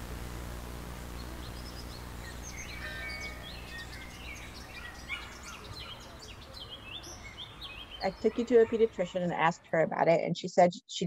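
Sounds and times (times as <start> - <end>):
low steady hum: 0.0 - 5.0
small birds chirping: 1.1 - 9.6.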